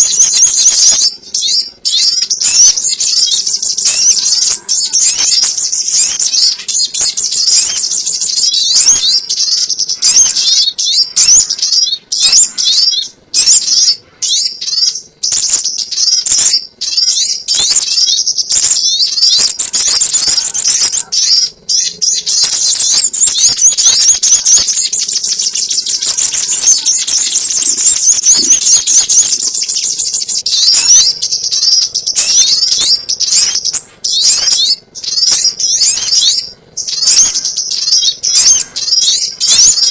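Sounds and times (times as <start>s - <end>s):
bird chirps and trills: 0.0s - 39.9s.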